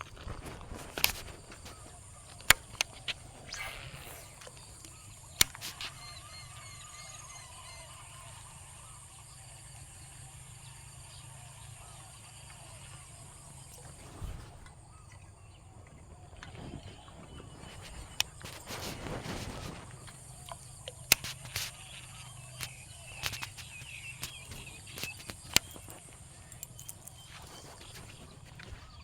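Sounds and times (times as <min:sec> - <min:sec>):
sharp clicks: 0:00.0 - 0:06.2, 0:17.7 - 0:28.8
faint bird chirps: 0:00.0 - 0:29.0
thin high hiss: 0:00.9 - 0:09.2.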